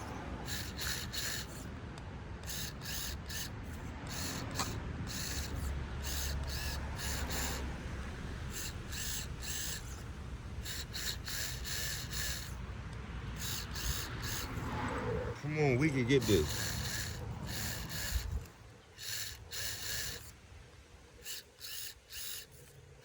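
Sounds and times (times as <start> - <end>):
small electric motor and gears whirring: 0.0 - 23.0.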